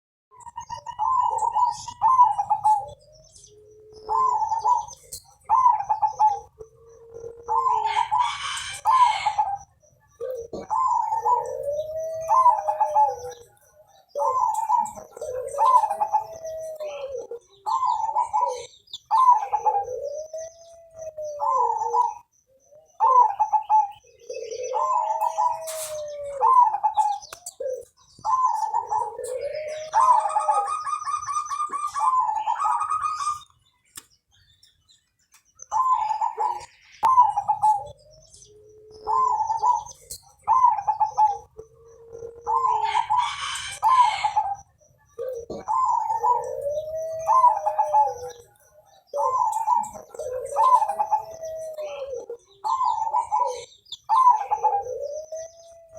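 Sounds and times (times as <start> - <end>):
dove cooing: 0.3 - 33.7, 35.3 - 55.9.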